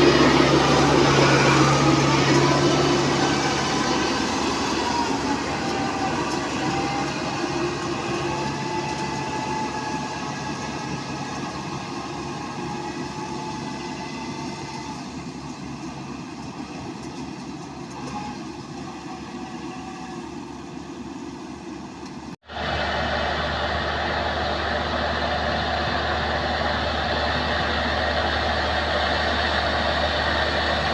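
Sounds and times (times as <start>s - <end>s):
wavering whine: 0.0s - 16.0s
combine harvester running: 0.0s - 30.9s.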